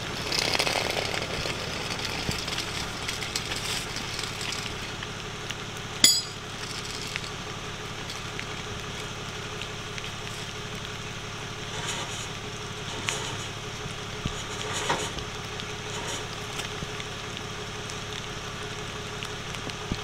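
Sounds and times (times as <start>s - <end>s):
rain pattering: 0.0s - 20.0s
truck engine idling: 0.0s - 20.0s
sharp metallic clink: 6.0s - 6.6s.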